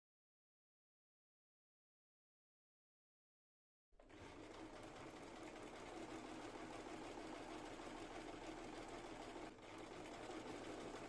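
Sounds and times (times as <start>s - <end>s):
sewing machine stitching: 4.0s - 11.0s.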